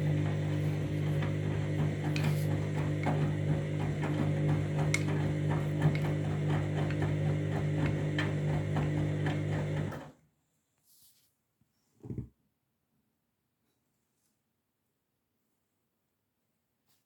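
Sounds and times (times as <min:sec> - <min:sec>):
washing machine motor humming: 0:00.0 - 0:10.1.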